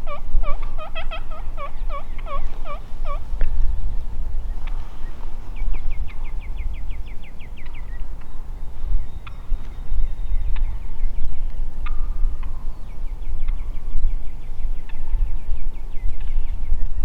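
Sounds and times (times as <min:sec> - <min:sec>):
turkey calling: 0:00.0 - 0:03.4
steady low rumble: 0:00.0 - 0:17.0.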